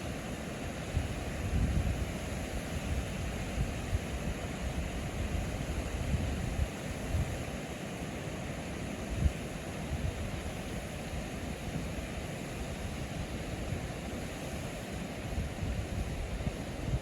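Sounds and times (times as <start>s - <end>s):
wind rumble on microphone: 0.9s - 7.5s, 9.1s - 10.6s, 14.6s - 17.0s.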